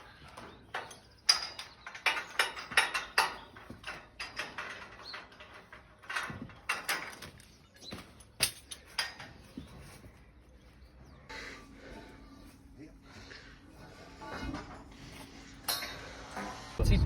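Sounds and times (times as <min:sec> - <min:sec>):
metal scaffold tubes clanking: 0:00.0 - 0:09.9.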